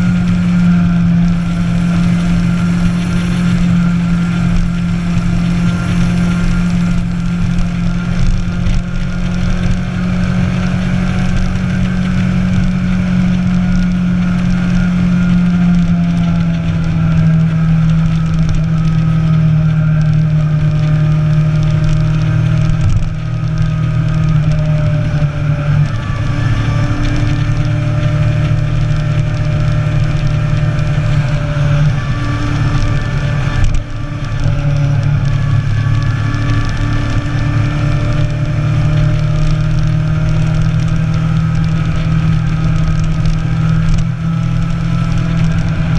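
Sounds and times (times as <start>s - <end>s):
motorcycle engine running: 0.0s - 45.9s
wind noise on microphone: 0.0s - 45.9s.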